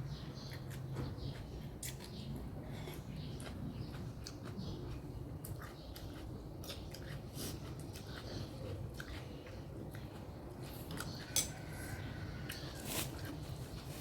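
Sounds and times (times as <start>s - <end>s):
chewing and mouth clicks: 0.3s - 11.7s.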